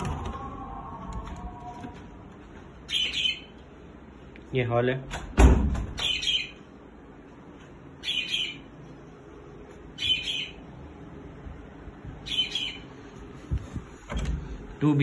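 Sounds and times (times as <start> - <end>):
bird calling: 2.8 - 3.6, 8.0 - 8.8, 10.0 - 10.7, 12.2 - 13.1.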